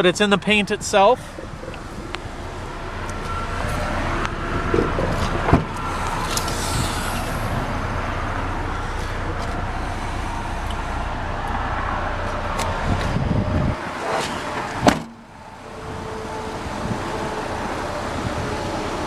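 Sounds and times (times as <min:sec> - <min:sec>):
car engine idling: 0:00.0 - 0:13.8.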